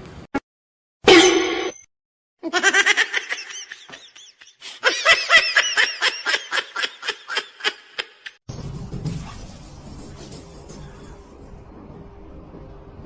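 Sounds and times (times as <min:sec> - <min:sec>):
person laughing hard: 0:02.4 - 0:08.4.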